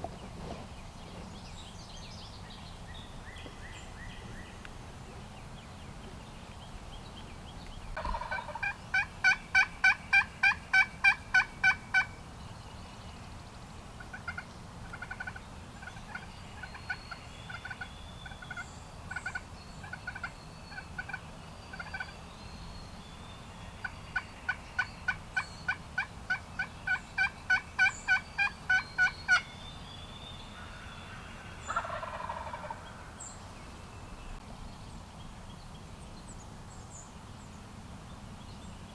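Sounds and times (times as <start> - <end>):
turkey gobble: 8.0 - 12.1, 14.1 - 16.9, 17.5 - 18.6, 19.2 - 21.2, 24.5 - 29.4, 30.6 - 33.2
turkey yelping: 8.0 - 12.1, 14.3 - 16.9, 25.7 - 29.4, 31.7 - 32.8.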